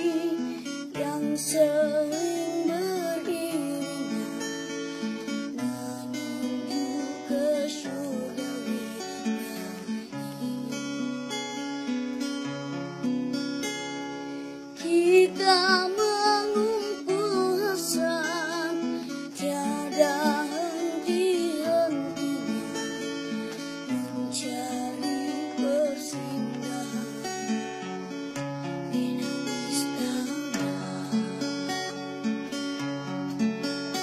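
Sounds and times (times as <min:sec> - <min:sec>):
person singing with vibrato: 0:00.0 - 0:11.1, 0:14.8 - 0:27.8, 0:28.9 - 0:31.7
acoustic guitar strumming: 0:00.0 - 0:34.0.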